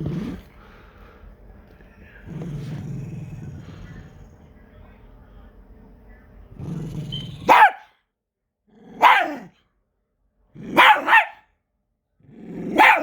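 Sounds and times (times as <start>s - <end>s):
dog growling: 0.0s - 0.9s, 2.0s - 4.5s, 6.5s - 7.6s, 8.7s - 9.5s, 10.6s - 11.3s, 12.2s - 13.0s
dog barking: 7.3s - 8.0s, 8.9s - 9.5s, 10.6s - 11.5s, 12.6s - 13.0s.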